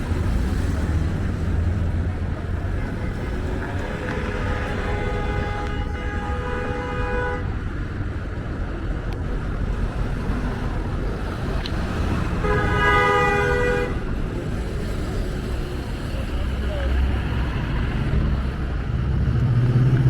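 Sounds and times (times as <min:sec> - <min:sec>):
low traffic rumble: 0:00.0 - 0:20.0
vehicle horn blasts: 0:03.9 - 0:07.5, 0:12.4 - 0:14.0.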